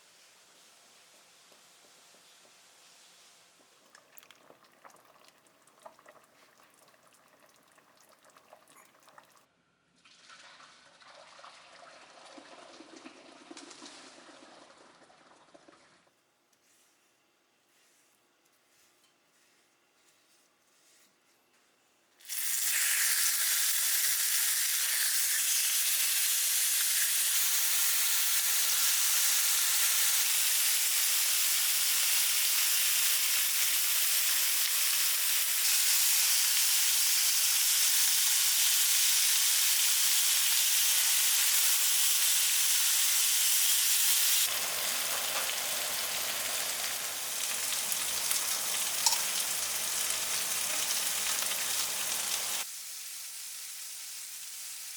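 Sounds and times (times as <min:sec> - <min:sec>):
food sizzling in hot oil: 0:22.2 - 0:54.9.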